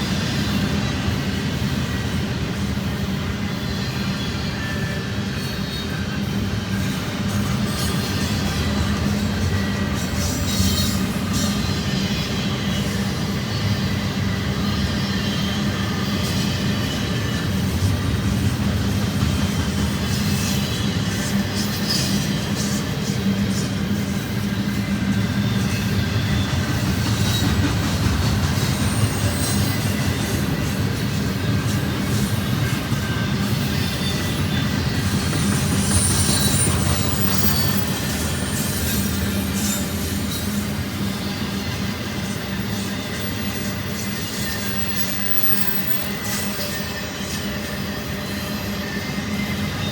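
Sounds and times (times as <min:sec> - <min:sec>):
high squeaks of train wheels: 0:00.0 - 0:49.9
train wheels rumbling on rails: 0:00.0 - 0:49.9.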